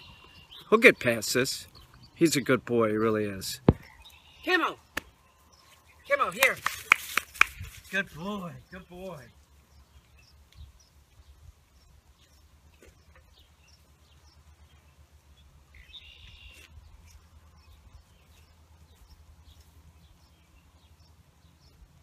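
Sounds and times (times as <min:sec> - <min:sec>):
faint bird chirps: 0:03.8 - 0:04.6, 0:15.7 - 0:18.4.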